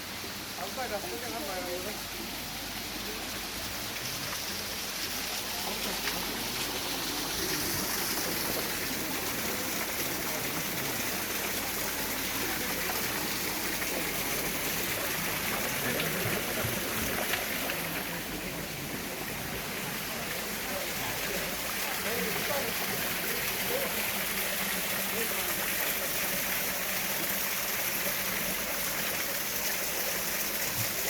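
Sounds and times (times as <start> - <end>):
water rushing from waterfall: 0.0 - 31.0.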